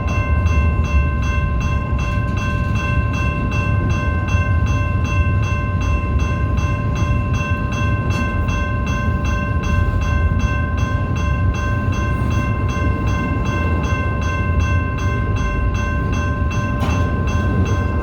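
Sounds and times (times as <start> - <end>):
freight train rumbling past: 0.0 - 18.0.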